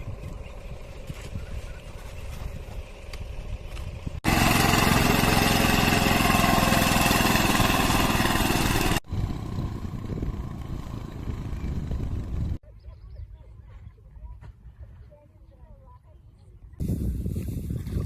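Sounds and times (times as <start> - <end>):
engine low rumble: 0.0 - 12.6
loud close engine: 4.2 - 12.6.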